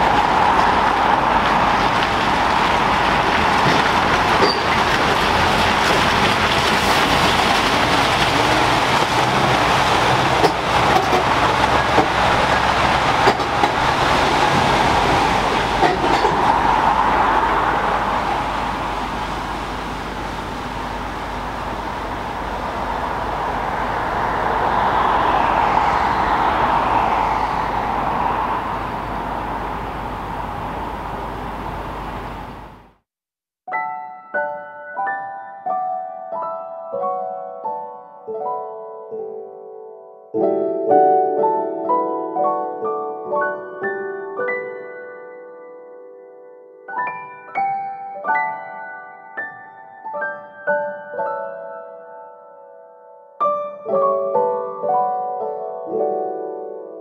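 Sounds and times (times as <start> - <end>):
train passing on rails: 0.0 - 32.9.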